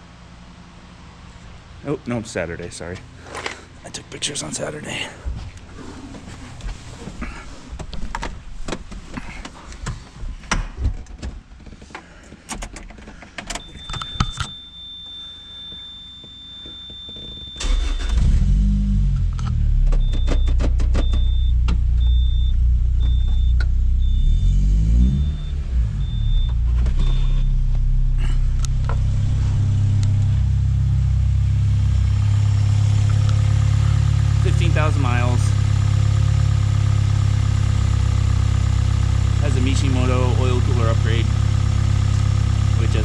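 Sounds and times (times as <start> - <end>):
high warning beep: 13.6 - 18.2, 20.0 - 24.5, 25.2 - 27.5
steady high warning tone: 13.6 - 18.2
car engine starting and running: 17.0 - 43.0.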